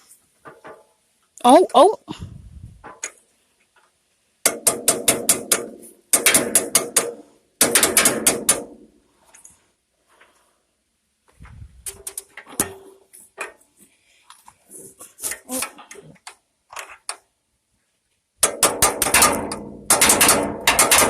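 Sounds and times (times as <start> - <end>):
metal striking metal: 18.4 - 21.0.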